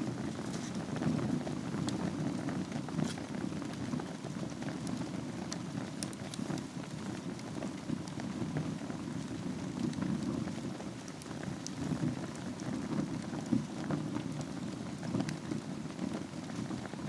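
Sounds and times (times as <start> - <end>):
burning wood crackling and popping: 0.0 - 17.0
fire flames rumbling: 0.0 - 17.0.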